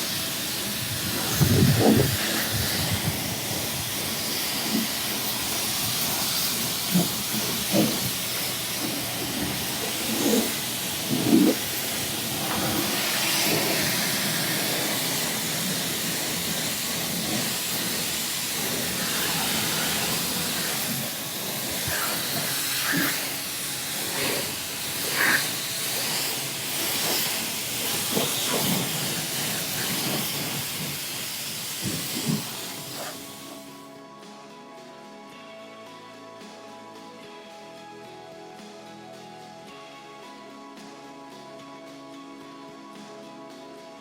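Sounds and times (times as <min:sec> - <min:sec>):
tyre and road noise hiss: 0:00.0 - 0:34.0.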